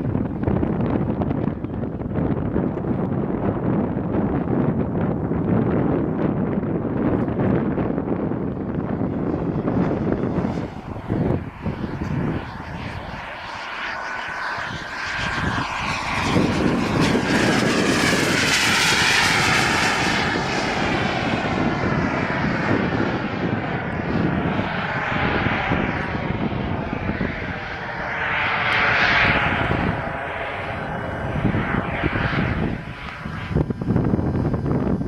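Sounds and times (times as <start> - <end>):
model jet turbine rushing: 0.0 - 35.0.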